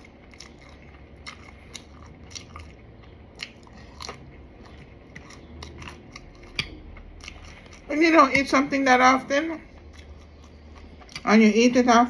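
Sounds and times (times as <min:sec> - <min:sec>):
person chewing crisp food: 0:00.0 - 0:08.6, 0:09.6 - 0:11.4.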